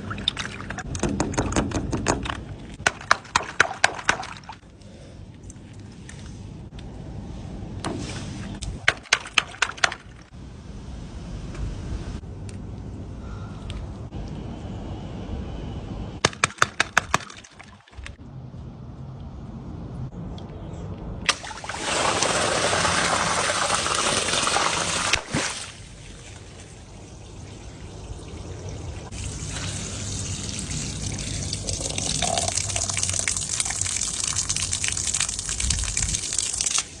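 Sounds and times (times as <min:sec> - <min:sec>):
liquid pouring: 0:21.3 - 0:25.2, 0:27.2 - 0:37.0
liquid trickling: 0:21.3 - 0:37.0.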